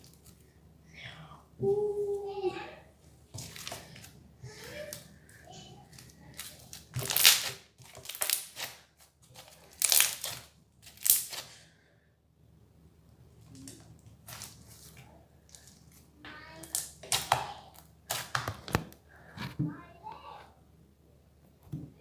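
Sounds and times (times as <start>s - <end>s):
crunchy slime squeezed by hand: 6.3s - 8.8s, 9.4s - 11.6s.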